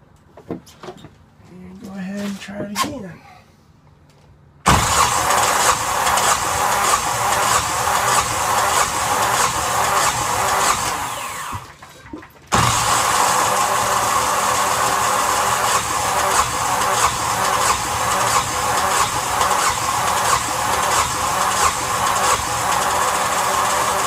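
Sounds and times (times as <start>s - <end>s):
starter motor cranking diesel engine: 4.6s - 11.9s, 12.5s - 24.0s.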